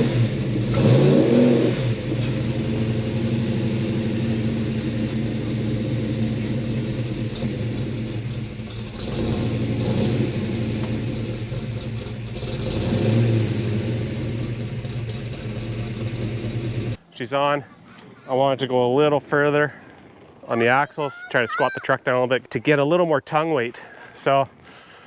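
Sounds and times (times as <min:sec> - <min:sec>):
car engine under light throttle: 0:00.0 - 0:17.0.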